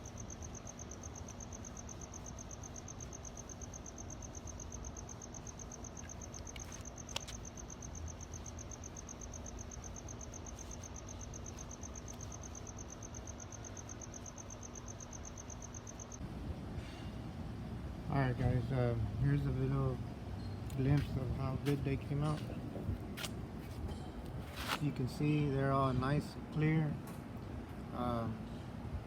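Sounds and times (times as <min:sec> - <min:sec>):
cricket chirping: 0:00.0 - 0:16.3.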